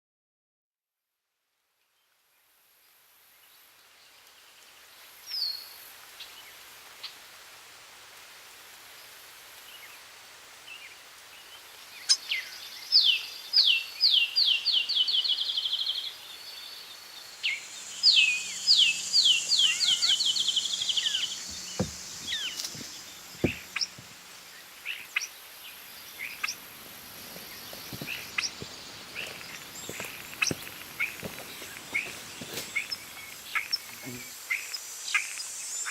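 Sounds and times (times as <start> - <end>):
songbird singing: 10.7 - 35.9
bird chirps: 12.1 - 24.1
soft ticks and rustles: 21.4 - 24.4, 26.4 - 34.2.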